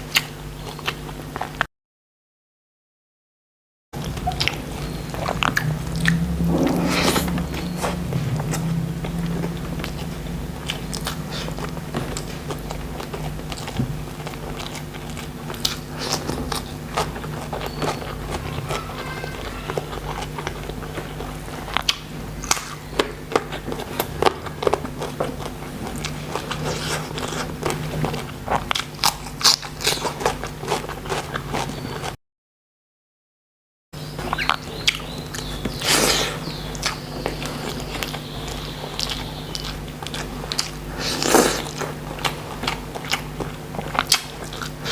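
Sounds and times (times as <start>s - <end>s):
chewing and crunching food: 0.0s - 1.7s, 4.0s - 32.2s, 34.1s - 44.9s
wet mouth sounds: 4.0s - 18.8s, 37.6s - 44.9s.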